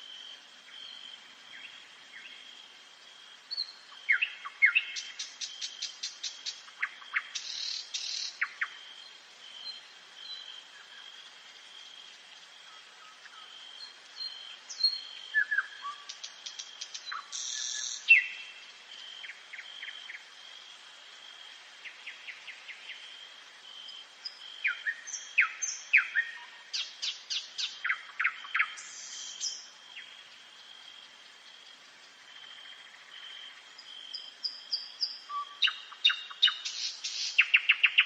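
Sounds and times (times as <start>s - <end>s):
nightingale singing: 3.5s - 8.8s, 12.7s - 20.3s, 24.2s - 30.3s, 32.6s - 38.0s.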